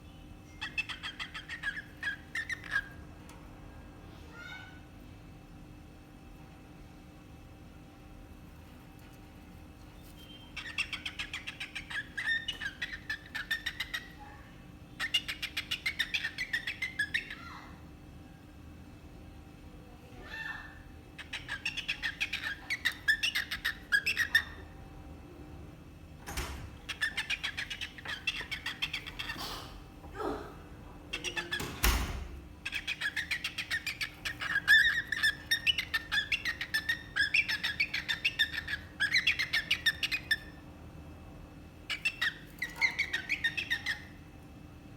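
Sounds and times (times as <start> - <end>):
cockatiel chirping: 0.5 - 3.0, 10.0 - 14.2, 15.0 - 17.4, 21.2 - 24.6, 26.8 - 29.7, 31.1 - 31.8, 32.6 - 40.6, 41.9 - 44.2.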